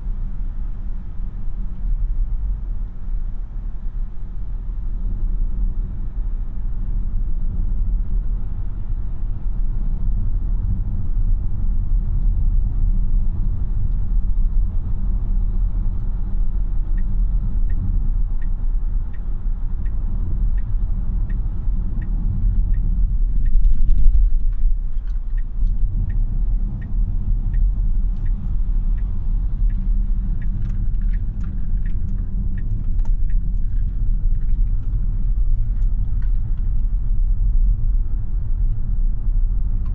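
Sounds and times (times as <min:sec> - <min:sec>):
road and tyre noise in car: 0:00.0 - 0:39.9
light ticking: 0:16.9 - 0:36.9.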